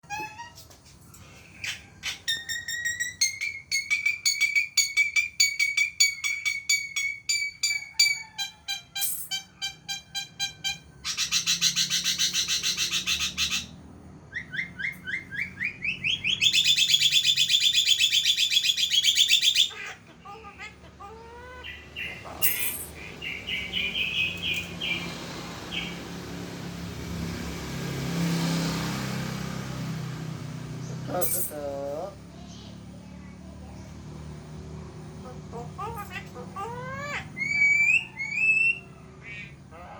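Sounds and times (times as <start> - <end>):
myna calling and chattering: 15.7 - 26.2, 35.0 - 39.9.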